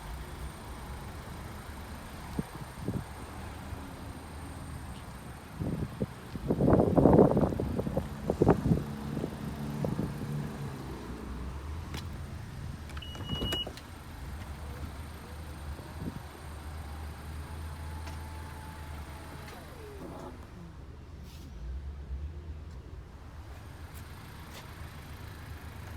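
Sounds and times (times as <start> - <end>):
car engine idling: 0.0 - 21.1
car clicks: 12.8 - 14.6.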